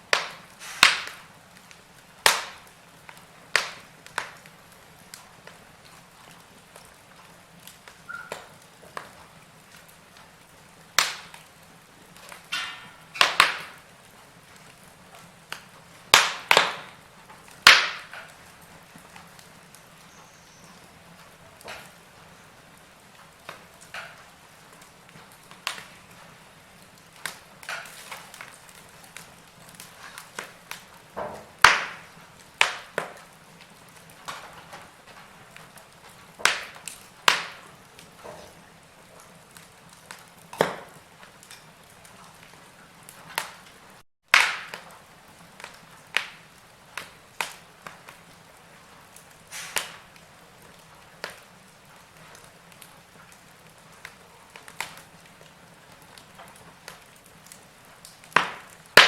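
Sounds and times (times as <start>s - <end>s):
flame hissing: 0.0s - 44.0s, 44.7s - 59.0s
wood fire crackling and popping: 0.0s - 59.0s.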